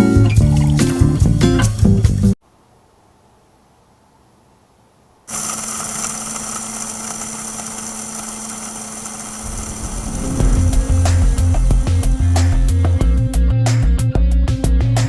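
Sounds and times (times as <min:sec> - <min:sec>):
electric spice grinder motor: 0:05.3 - 0:13.0.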